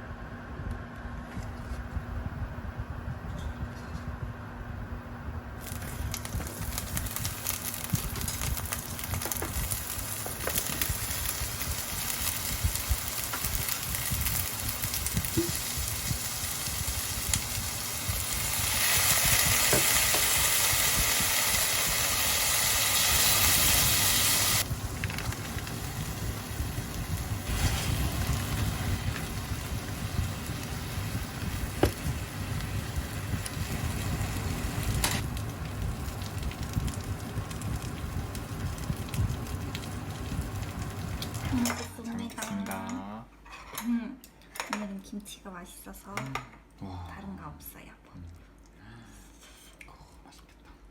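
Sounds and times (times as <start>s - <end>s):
food sizzling in a frying pan: 5.6s - 41.9s.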